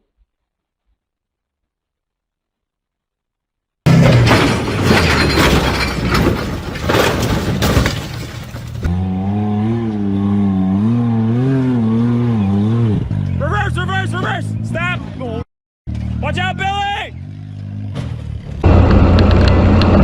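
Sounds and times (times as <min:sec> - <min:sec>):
vehicle crash impacts: 0:03.9 - 0:08.9.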